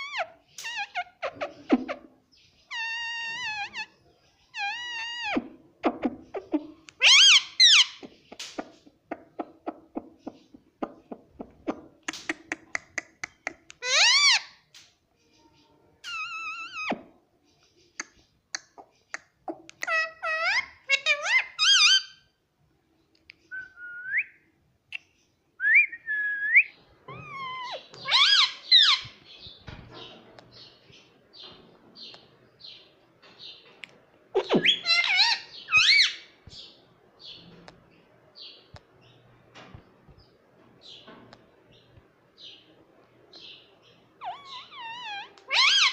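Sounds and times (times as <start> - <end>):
parrot squawking: 2.7 - 8.0, 13.7 - 14.6, 19.5 - 22.3, 27.1 - 29.2, 34.4 - 36.4, 44.2 - 45.9.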